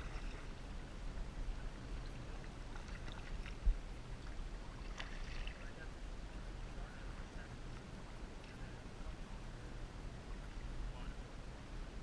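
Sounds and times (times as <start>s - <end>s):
water splashing against kayak: 0.0s - 6.0s
steady low rumble: 0.0s - 12.0s.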